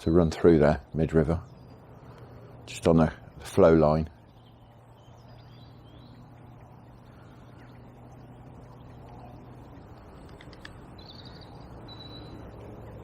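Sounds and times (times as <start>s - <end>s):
faint low hum: 0.0s - 13.0s
high bird calls: 4.2s - 13.0s.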